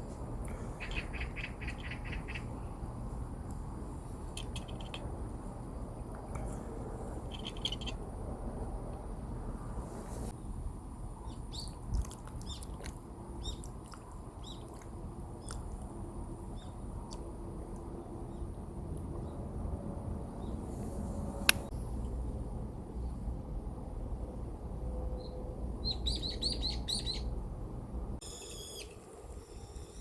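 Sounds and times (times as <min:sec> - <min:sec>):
low background rumble: 0:00.0 - 0:28.2
small birds chirping: 0:00.5 - 0:02.8, 0:04.1 - 0:05.1, 0:07.2 - 0:08.0, 0:11.2 - 0:15.9, 0:16.5 - 0:17.2, 0:25.2 - 0:27.3.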